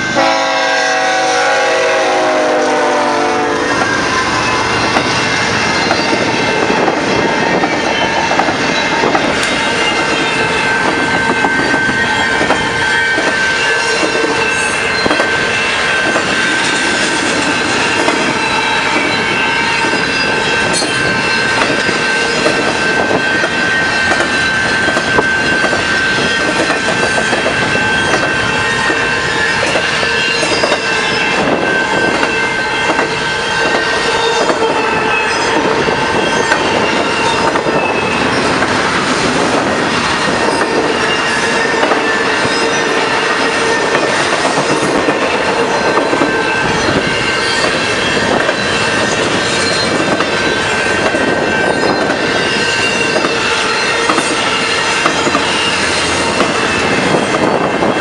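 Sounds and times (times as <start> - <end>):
train wheels rumbling and clattering: 0.0 - 58.0
high-pitched wheel squeal: 45.7 - 57.9.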